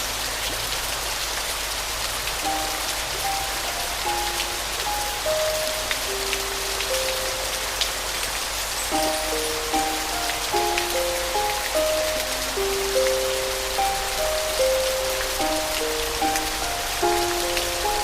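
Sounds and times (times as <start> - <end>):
steady rain: 0.0 - 18.0
soft slow piano melody: 1.9 - 18.0.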